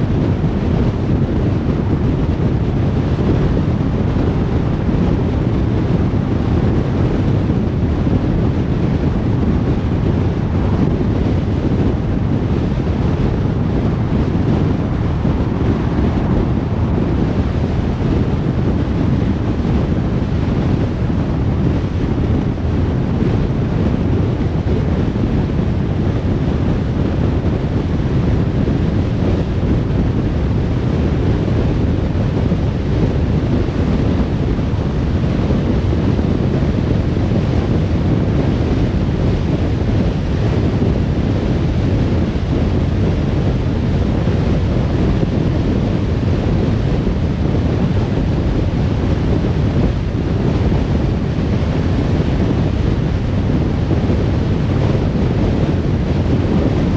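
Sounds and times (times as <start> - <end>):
car road noise tyres and wind: 0.0 - 56.9.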